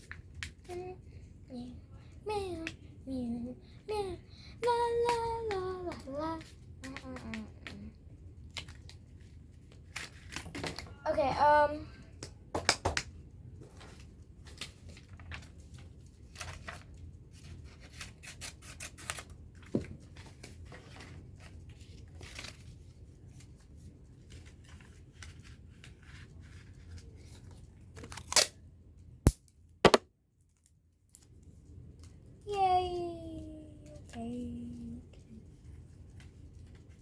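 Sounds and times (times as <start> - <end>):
paper rustling: 16.3 - 16.9.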